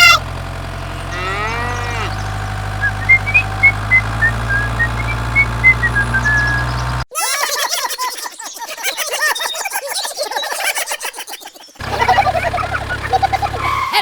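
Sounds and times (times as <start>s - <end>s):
low engine hum: 0.0s - 7.1s, 11.8s - 14.0s
wavering call: 1.0s - 6.8s.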